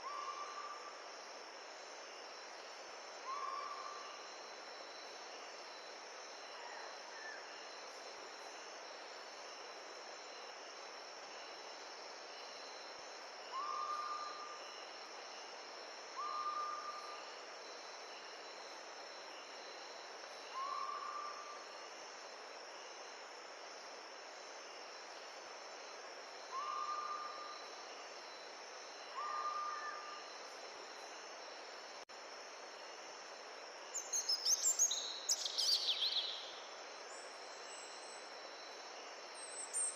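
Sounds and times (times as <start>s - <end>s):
insects chirring: 0.0s - 39.9s
bird chirping song: 34.0s - 36.6s.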